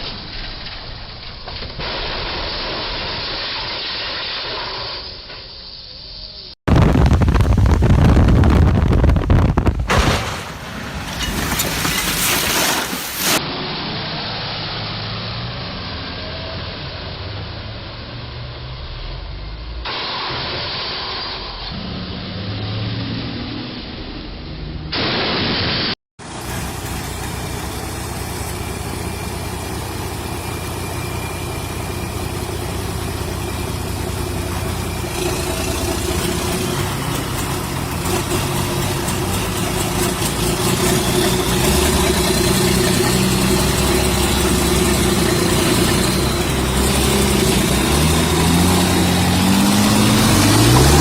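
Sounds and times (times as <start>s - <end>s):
vehicle engine running: 26.2s - 51.0s.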